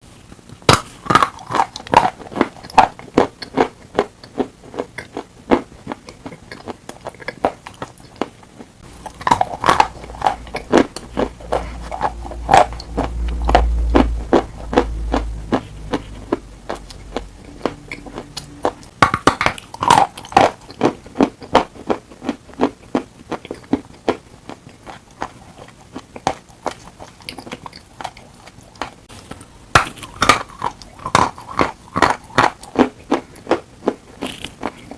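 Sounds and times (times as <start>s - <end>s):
chalk being crunched and chewed: 0.7s - 34.9s
low rumble: 8.9s - 19.0s.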